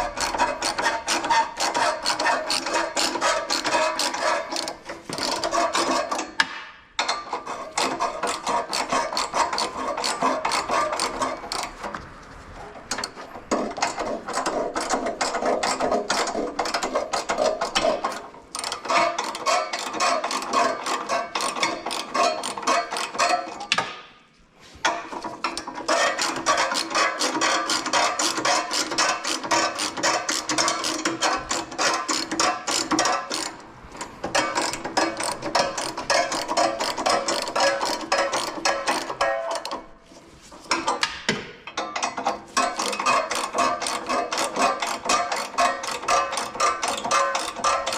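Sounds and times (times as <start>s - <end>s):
ratchet wrench clicking: 34.3s - 39.2s, 42.6s - 47.9s.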